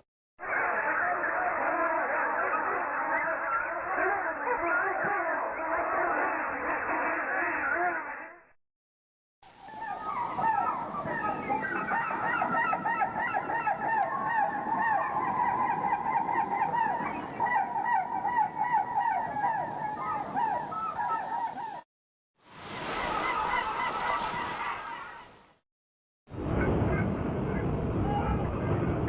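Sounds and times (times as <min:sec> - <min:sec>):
flock of waterfowl calling: 0:00.4 - 0:08.3, 0:09.6 - 0:21.8, 0:22.7 - 0:25.3.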